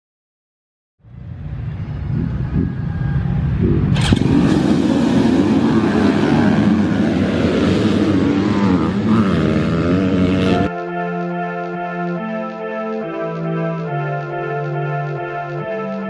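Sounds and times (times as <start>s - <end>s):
motorcycle engine revving: 1.8s - 10.7s
music: 10.2s - 16.0s.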